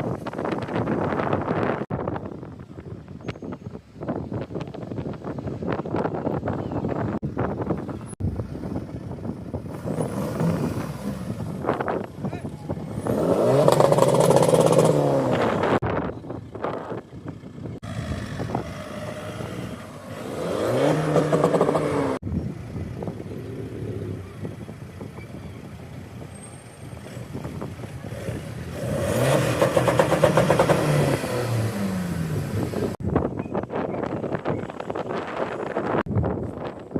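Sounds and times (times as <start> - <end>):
cars accelerating past: 17.9 - 22.2, 28.0 - 33.0.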